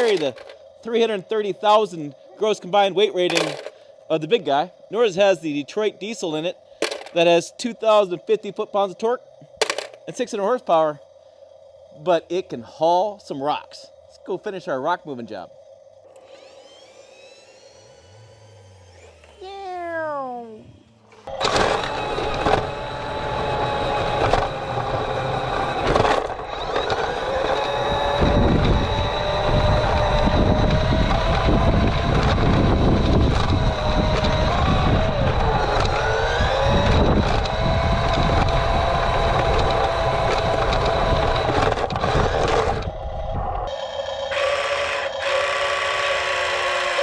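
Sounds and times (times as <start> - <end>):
model truck motor whine: 0.0 - 7.2, 7.8 - 47.0
simulated diesel engine sound: 0.0 - 47.0
loud rumbling rattle: 21.2 - 44.6.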